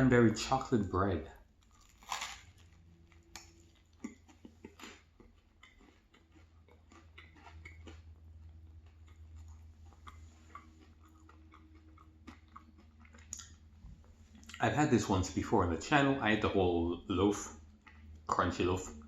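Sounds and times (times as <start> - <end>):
steady low hum: 0.0 - 19.0
chewing mouth clicks: 3.2 - 13.6.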